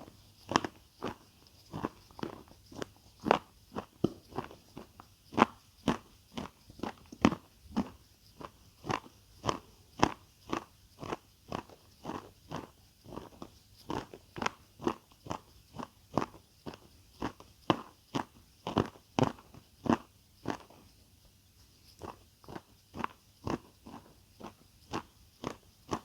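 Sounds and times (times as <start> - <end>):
chewing crunchy food: 22.0 - 26.0.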